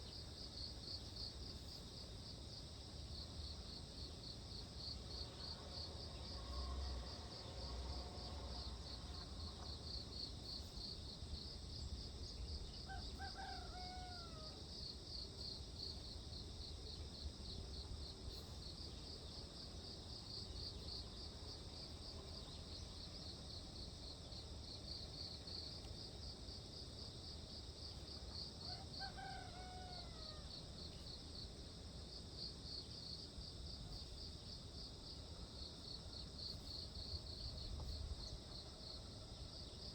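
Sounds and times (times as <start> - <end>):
insects trilling: 0.0 - 31.5
rooster crowing: 12.8 - 14.6, 28.6 - 30.6.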